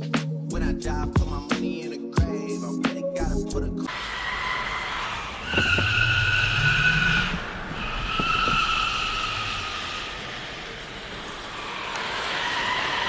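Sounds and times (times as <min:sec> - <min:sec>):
car tyres squealing: 0:03.9 - 0:13.0.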